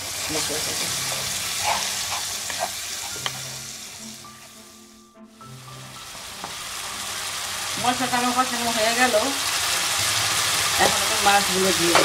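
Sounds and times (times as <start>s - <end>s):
food sizzling in hot oil: 0.0s - 12.0s
wooden spatula scraping pan: 0.8s - 3.1s.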